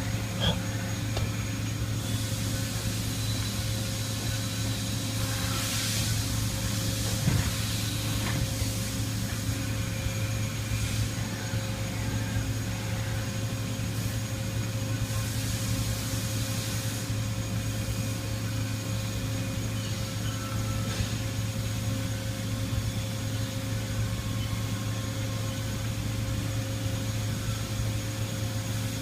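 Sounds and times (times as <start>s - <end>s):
milling machine hum and whine: 0.0s - 29.0s
hiss swells: 1.6s - 11.6s, 13.6s - 24.1s.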